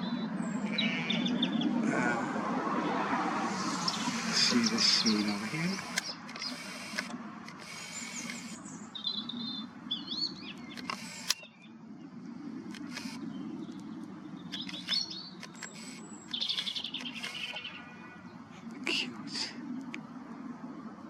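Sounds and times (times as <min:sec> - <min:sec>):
small birds chirping: 0:00.0 - 0:01.8, 0:03.5 - 0:20.1
handling clicks: 0:05.5 - 0:08.6, 0:14.5 - 0:17.6.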